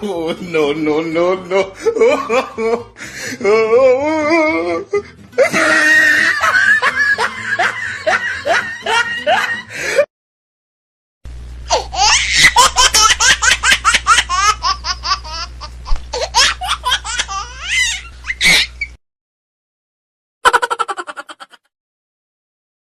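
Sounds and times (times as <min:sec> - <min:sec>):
person laughing: 0:00.0 - 0:10.1, 0:11.7 - 0:18.8, 0:20.4 - 0:21.7.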